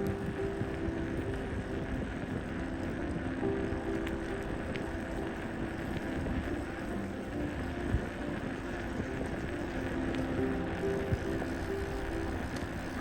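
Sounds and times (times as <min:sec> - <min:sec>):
faint background music: 0:00.0 - 0:13.0
wind rumbling on microphone: 0:00.0 - 0:13.0.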